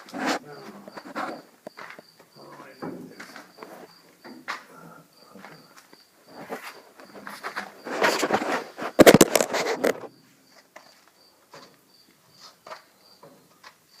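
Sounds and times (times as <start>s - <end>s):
rustling and clattering: 0.0s - 4.7s, 6.2s - 11.8s
cricket chirping: 0.0s - 14.0s
handling noise: 6.3s - 11.8s.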